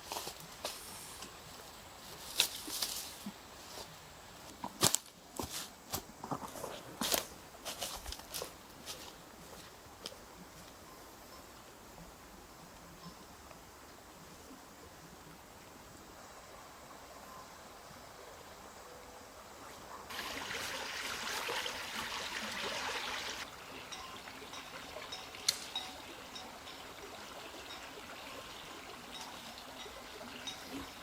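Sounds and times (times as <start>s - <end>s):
water trickling: 20.1s - 31.0s.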